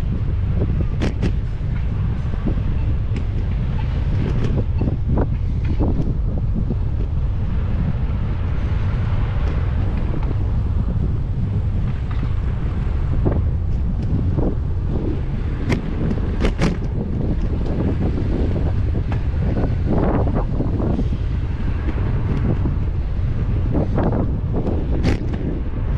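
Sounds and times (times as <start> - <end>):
wind buffeting microphone: 0.0 - 25.9
sharp clicks and rattles: 15.6 - 17.8.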